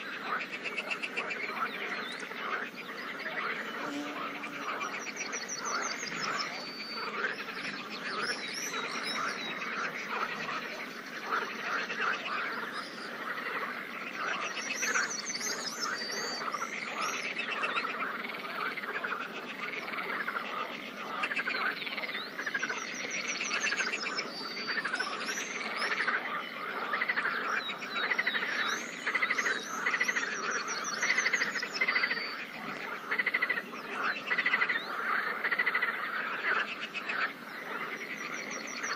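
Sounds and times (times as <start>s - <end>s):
frogs croaking in chorus: 0.0s - 38.9s.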